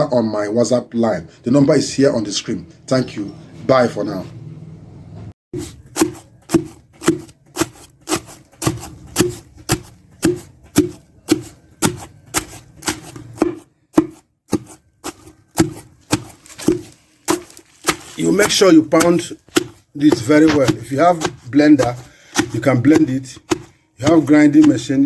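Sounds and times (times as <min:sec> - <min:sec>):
pestle pounding in a mortar: 0:05.6 - 0:25.0.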